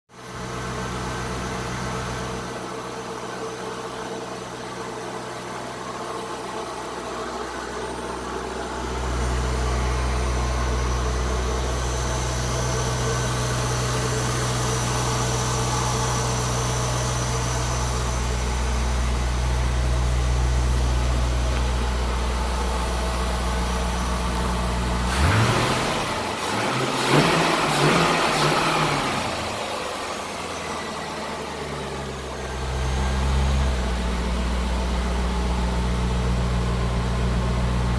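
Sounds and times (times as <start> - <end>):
car engine idling: 0.2 - 37.9
car engine revving: 8.8 - 37.9.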